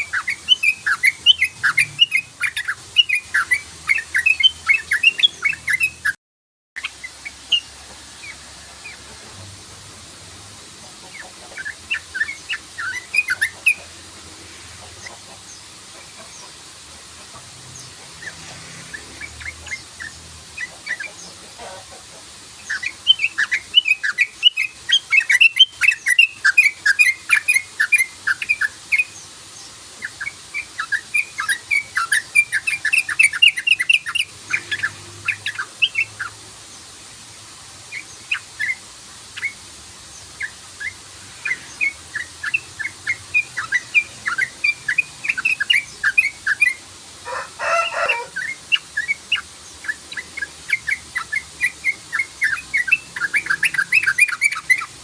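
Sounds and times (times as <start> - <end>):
bird chattering call: 10.9 - 14.0, 40.4 - 55.0.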